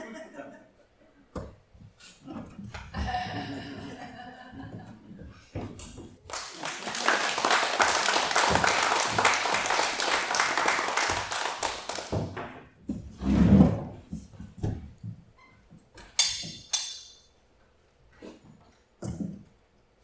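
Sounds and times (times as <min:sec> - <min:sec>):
audience applauding: 0:06.3 - 0:12.3.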